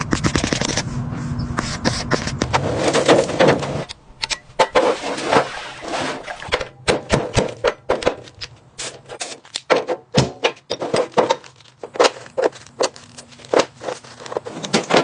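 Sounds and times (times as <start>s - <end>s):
steady low hum: 0.0s - 5.1s.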